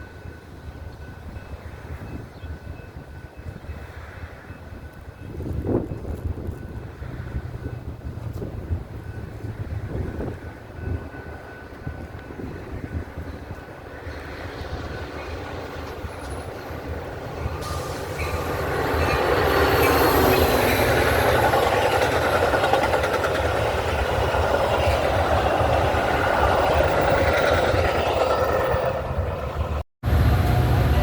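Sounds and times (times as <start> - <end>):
train passing: 0.0 - 31.0
wheel clatter on rails: 19.0 - 29.2.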